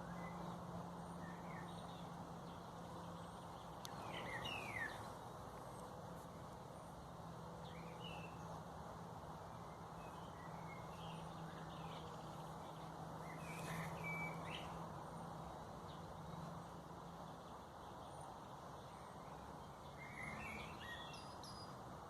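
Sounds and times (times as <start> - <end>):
small birds chirping: 0.0 - 21.8.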